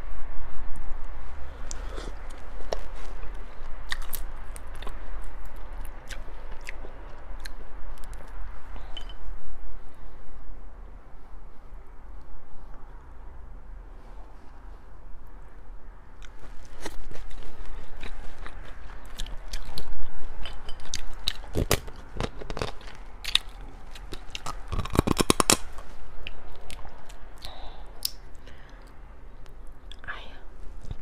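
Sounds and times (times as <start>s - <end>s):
person chewing: 1.4s - 9.2s, 16.2s - 31.0s
shells cracking and crunching: 16.8s - 27.2s.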